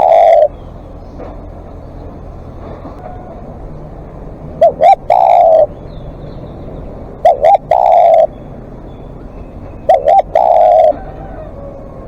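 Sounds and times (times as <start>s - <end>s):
dove cooing: 0.0s - 0.7s, 4.5s - 12.0s.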